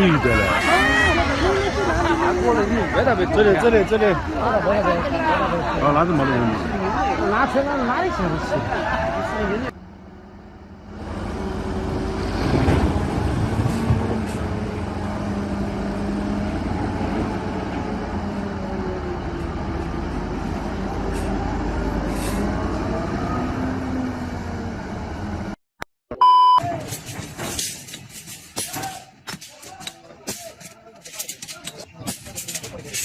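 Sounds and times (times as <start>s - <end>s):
vehicle engine and road rumble: 0.0s - 25.6s
short electronic beep: 26.1s - 26.6s.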